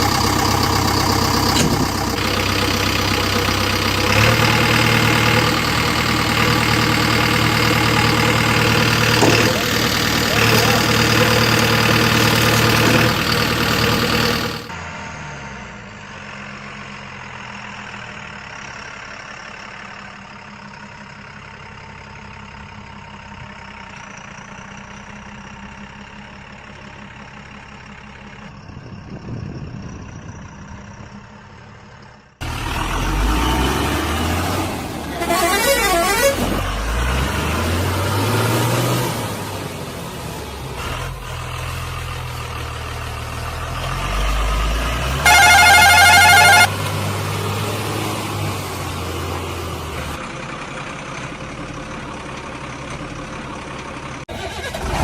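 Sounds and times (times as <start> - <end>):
vehicle engines running: 0.0 - 55.0
horn honking: 35.0 - 36.8, 45.1 - 46.9.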